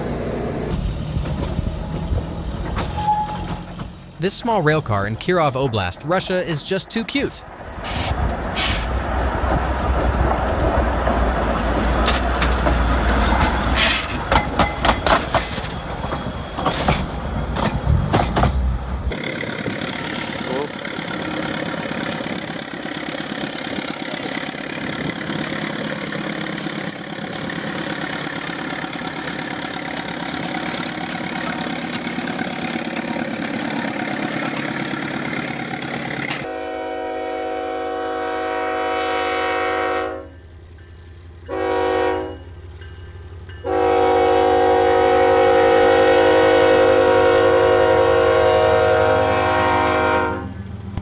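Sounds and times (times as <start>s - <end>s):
train rumbling on track: 0.0s - 51.0s
train horn blasts: 36.4s - 40.4s, 41.5s - 42.5s, 43.6s - 50.6s.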